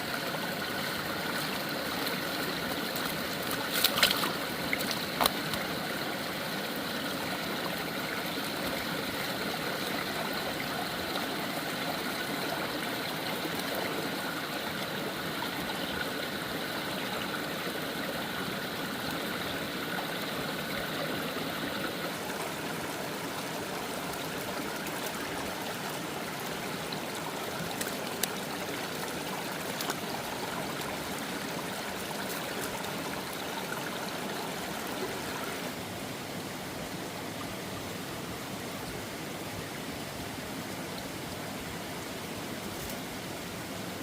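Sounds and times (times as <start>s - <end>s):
stream flowing over rocks: 0.0s - 44.0s.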